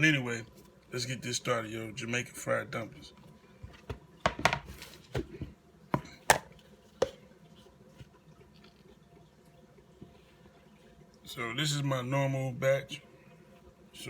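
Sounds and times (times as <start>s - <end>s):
kitchen items knocking on counter: 3.7s - 7.2s.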